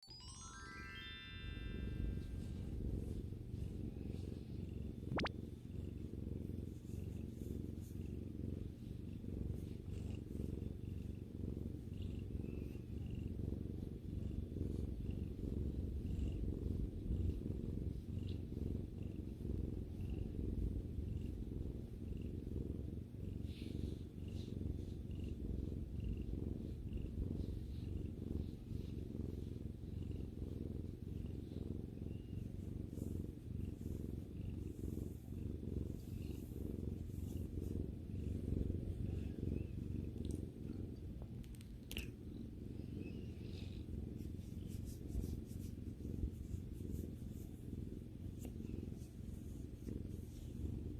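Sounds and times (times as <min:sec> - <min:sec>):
cat purring: 0:00.3 - 0:50.9.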